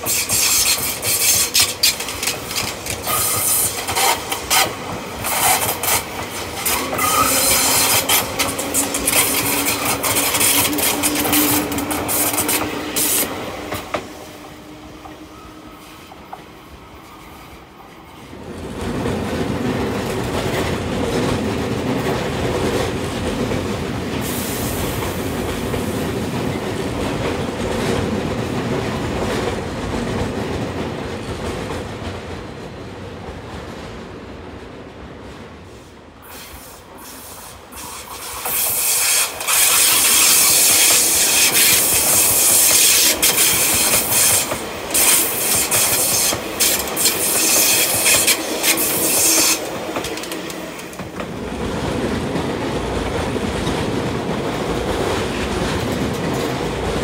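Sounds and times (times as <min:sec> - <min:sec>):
train wheel squeal: 0:00.0 - 0:02.3, 0:03.0 - 0:04.7, 0:06.6 - 0:13.3, 0:15.0 - 0:16.2, 0:36.3 - 0:49.7
train wheels clattering over rail joints: 0:00.0 - 0:15.1, 0:37.7 - 0:57.0
passing train rumble: 0:00.0 - 0:57.0.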